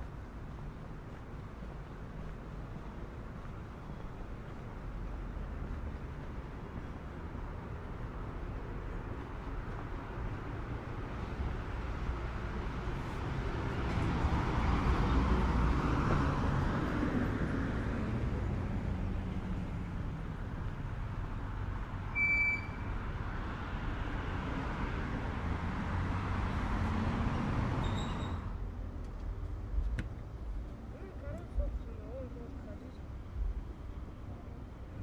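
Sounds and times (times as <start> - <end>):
road traffic passing: 0.0 - 35.0
short high beep: 22.2 - 22.9.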